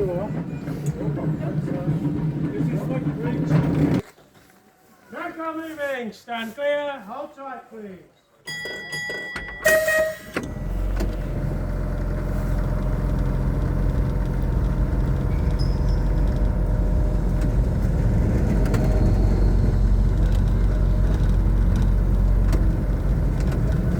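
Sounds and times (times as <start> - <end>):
electric tram rumbling on rails: 0.0 - 4.0, 9.0 - 23.9.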